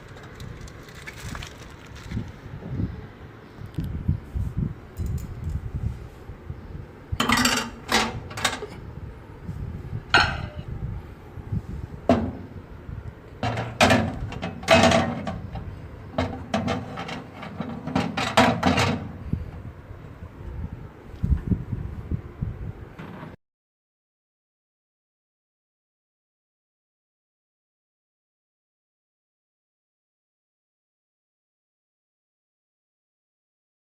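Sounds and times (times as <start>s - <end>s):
microwave oven knocking and rattling: 7.2s - 8.8s, 12.0s - 12.5s, 13.4s - 19.4s.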